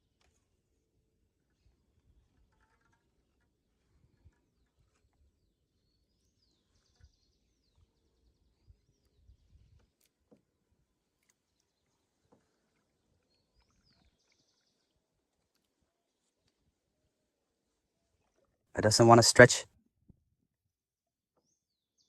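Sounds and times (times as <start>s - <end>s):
bird song with rapid trill: 4.4s - 10.0s, 13.2s - 15.0s, 21.4s - 22.0s.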